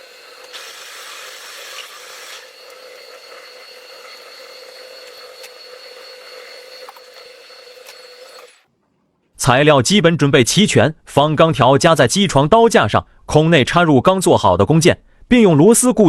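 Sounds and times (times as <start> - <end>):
metal lathe whining: 0.0 - 8.6.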